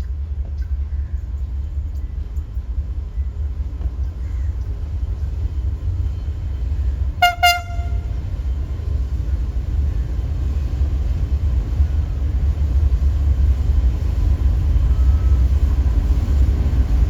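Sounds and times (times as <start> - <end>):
freight train rumbling: 0.0 - 17.0
locomotive horn toots: 7.2 - 8.3.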